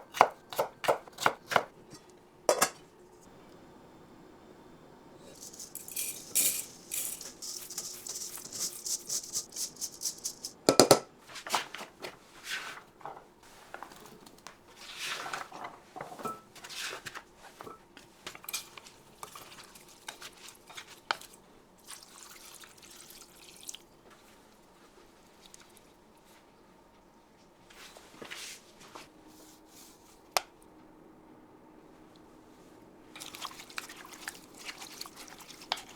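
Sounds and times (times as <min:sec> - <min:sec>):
dishes clinking and scraping: 0:01.9 - 0:02.9, 0:05.2 - 0:11.0, 0:15.3 - 0:16.8
utensils clicking and tapping: 0:05.2 - 0:11.1.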